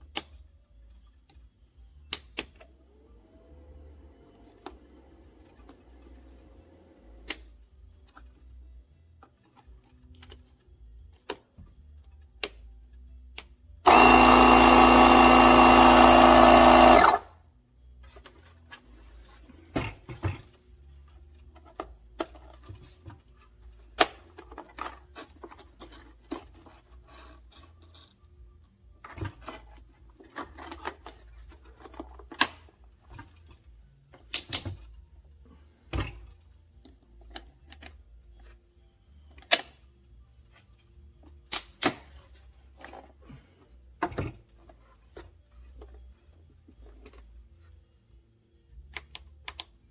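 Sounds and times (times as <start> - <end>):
loud mechanical whir: 13.9 - 17.2.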